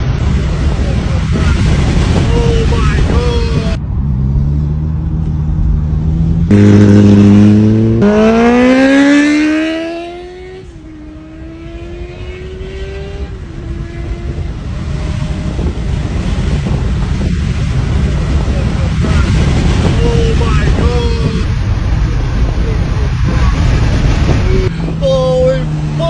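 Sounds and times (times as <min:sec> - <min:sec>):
motorcycle accelerating: 0:03.7 - 0:26.0.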